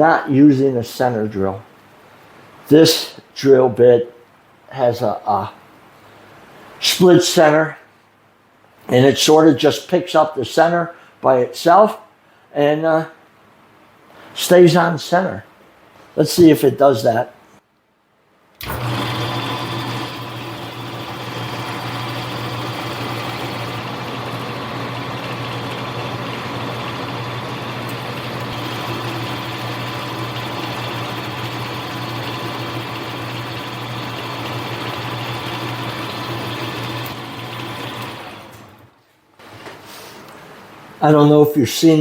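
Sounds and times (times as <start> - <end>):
lathe running with low hum: 18.6 - 38.9.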